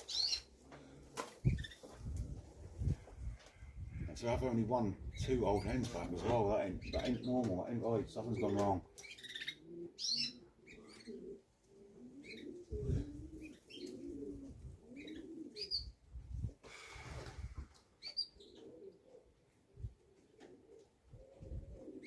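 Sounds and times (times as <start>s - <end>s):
pigeons cooing: 0.0s - 22.0s
rustle: 10.0s - 15.8s.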